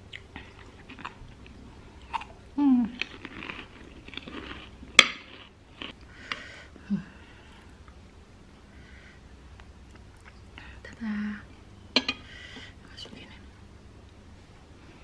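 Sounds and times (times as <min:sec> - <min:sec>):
person chewing food: 0:00.1 - 0:08.0
low voiced hum: 0:05.6 - 0:13.7.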